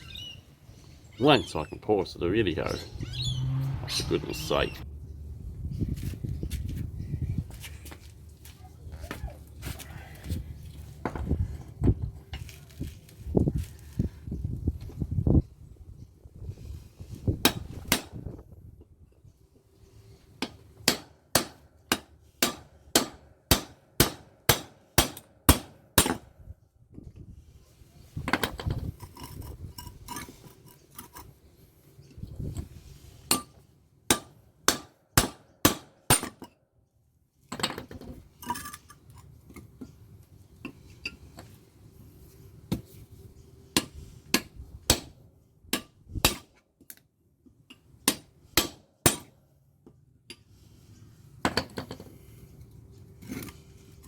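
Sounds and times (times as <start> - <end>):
metal parts scraping and clinking: 28.3 - 31.5, 37.5 - 40.0, 53.2 - 54.0.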